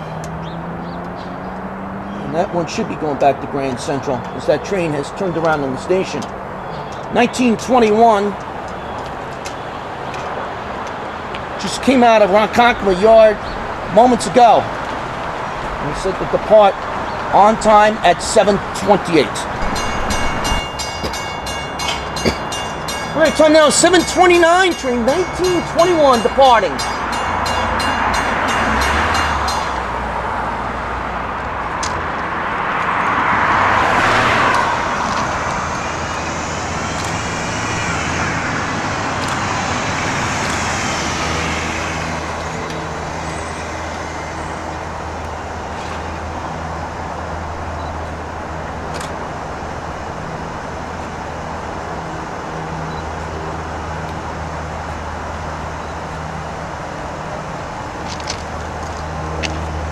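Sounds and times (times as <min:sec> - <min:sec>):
electric train passing: 0:17.8 - 0:57.5
crossing bell ringing: 0:18.8 - 0:31.7
traction motor whine: 0:19.4 - 0:23.6, 0:34.5 - 0:46.2.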